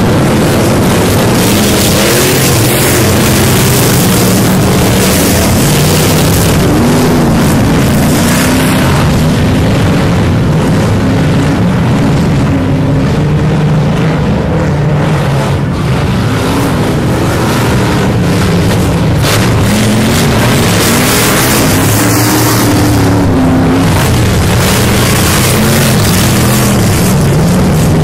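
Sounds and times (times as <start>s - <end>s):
off-road engines revving: 0.0s - 28.0s.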